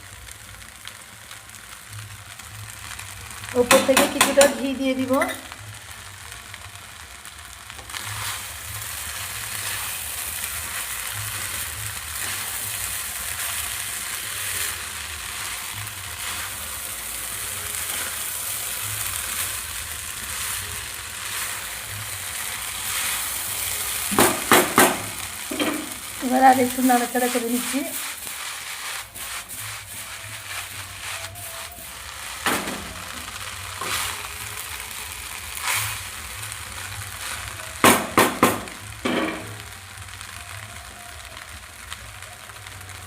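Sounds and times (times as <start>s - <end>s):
rice sizzling in oil: 0.0s - 43.0s.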